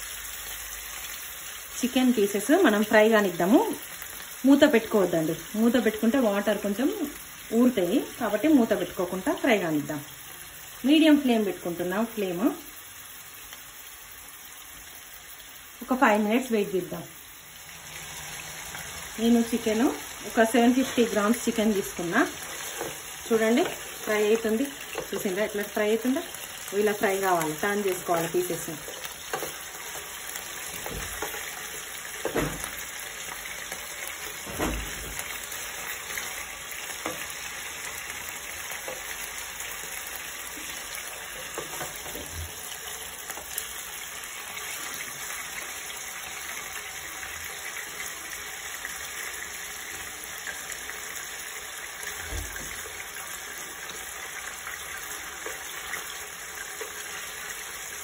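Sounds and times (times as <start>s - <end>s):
chicken sizzling in a pan: 0.0s - 58.0s
spatula scraping a pan: 20.8s - 24.1s, 28.8s - 32.8s.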